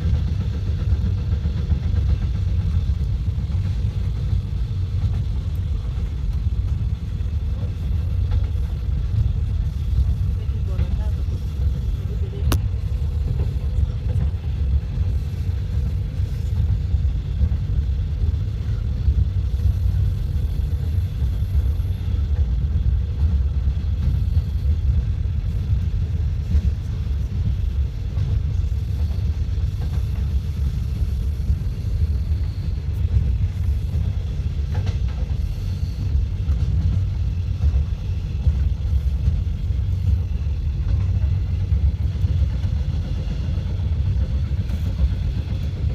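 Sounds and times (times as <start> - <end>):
passenger train rumbling: 0.0 - 45.9.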